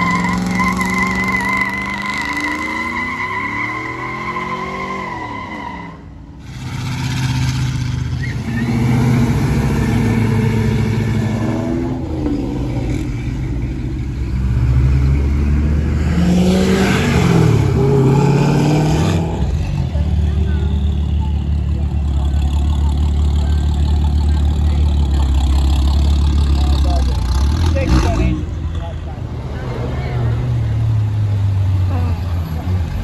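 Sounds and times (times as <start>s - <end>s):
tyre squealing: 0.0s - 9.4s
car engine revving hard: 6.4s - 20.8s.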